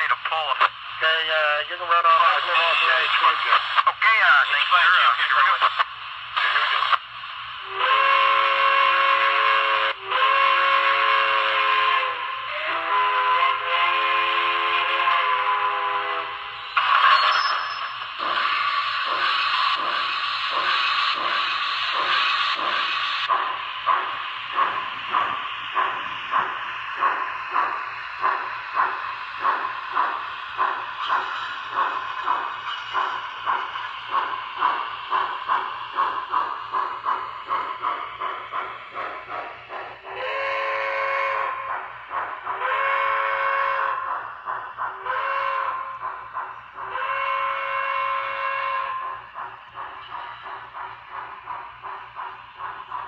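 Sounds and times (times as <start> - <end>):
steam hissing: 5.7 - 53.0
steam locomotive whistle: 7.6 - 16.6, 40.1 - 41.6, 42.6 - 44.0, 45.0 - 45.9, 46.9 - 49.1.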